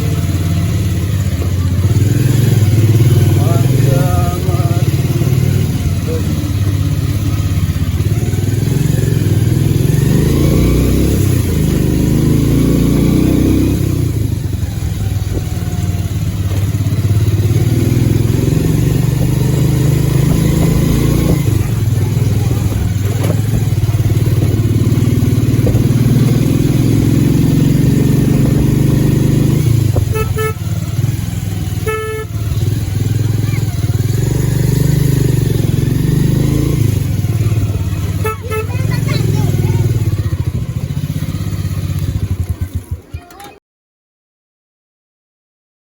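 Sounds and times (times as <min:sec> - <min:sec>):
motorcycle engine running: 0:00.0 - 0:43.6
horn beeps: 0:29.9 - 0:30.8, 0:31.7 - 0:32.7, 0:38.1 - 0:39.9.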